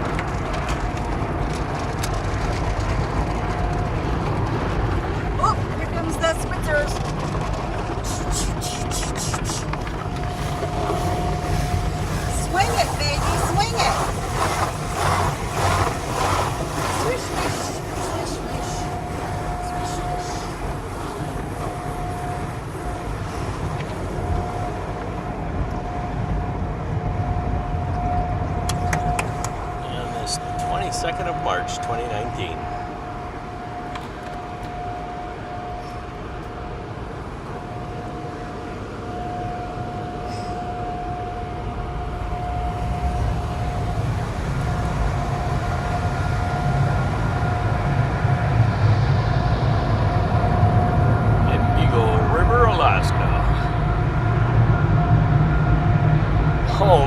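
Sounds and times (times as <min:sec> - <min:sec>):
car wash machinery rumble: 0:00.0 - 0:57.0
constant hum: 0:00.0 - 0:57.0
car wash water spray and brushes: 0:07.8 - 0:24.9
thin steady tone: 0:08.0 - 0:25.1, 0:27.5 - 0:33.8.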